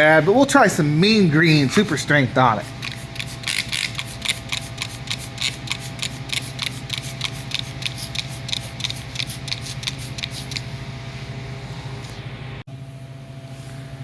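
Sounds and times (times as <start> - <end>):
steady low hum: 0.0 - 14.0
spray bottle hissing sprays: 2.6 - 10.6.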